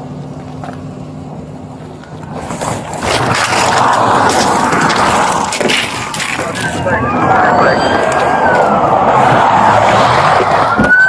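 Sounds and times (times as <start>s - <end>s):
vehicle low hum: 0.0s - 11.0s
wind or road rushing noise: 2.2s - 11.0s.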